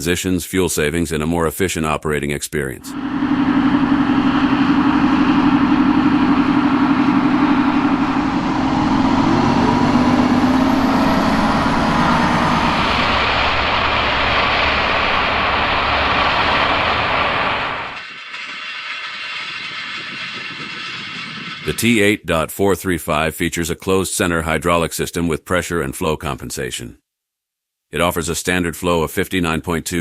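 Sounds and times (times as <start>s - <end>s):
broad rushing noise: 2.9s - 22.1s
tractor diesel engine running: 2.9s - 22.2s.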